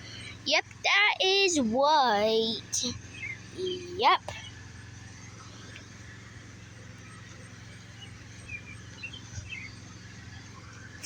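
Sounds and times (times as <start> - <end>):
steady low hum: 0.0 - 11.0
faint high chirps: 2.9 - 4.5.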